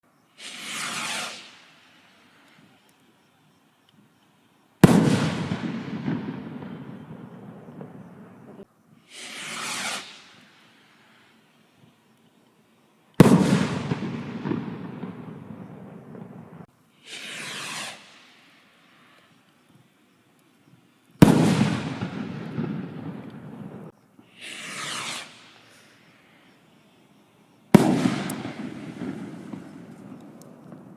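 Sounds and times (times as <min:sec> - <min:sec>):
firework bang: 0:00.4 - 0:01.6, 0:04.8 - 0:08.6, 0:09.2 - 0:10.3, 0:13.2 - 0:18.1, 0:21.2 - 0:25.6, 0:27.8 - 0:30.9
rocket launch whoosh: 0:00.4 - 0:01.6, 0:09.1 - 0:10.5, 0:17.1 - 0:18.3, 0:24.4 - 0:25.6
crackle and echo: 0:12.1 - 0:19.7, 0:20.3 - 0:26.6, 0:27.8 - 0:30.9.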